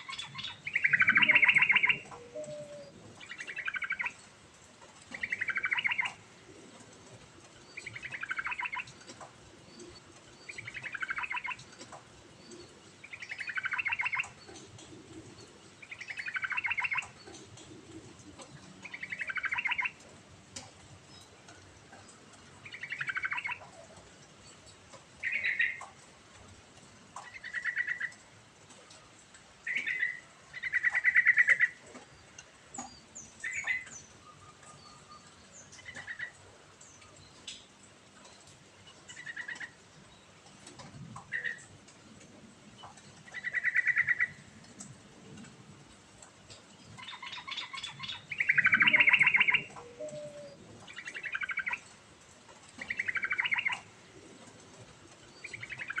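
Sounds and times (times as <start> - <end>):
bulbul singing: 0.0 - 4.2, 47.0 - 51.8.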